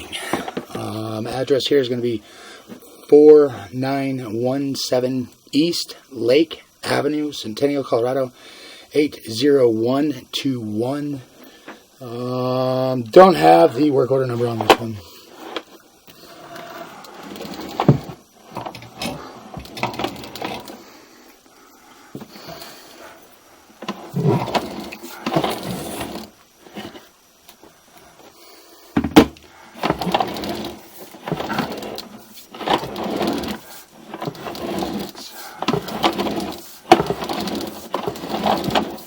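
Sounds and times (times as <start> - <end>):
cable rattling and scraping in pipe: 14.3 - 20.8, 23.8 - 27.1, 29.8 - 39.0.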